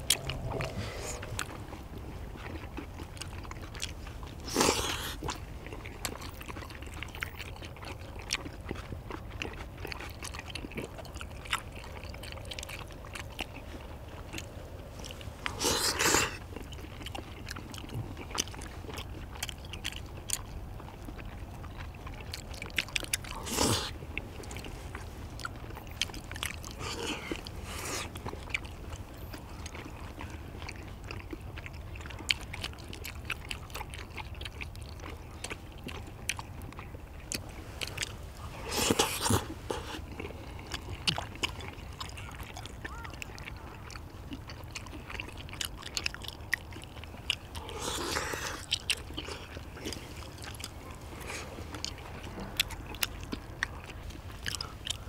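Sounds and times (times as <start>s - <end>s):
noisy bursts: 0.0s - 2.2s
people chewing: 0.0s - 55.0s.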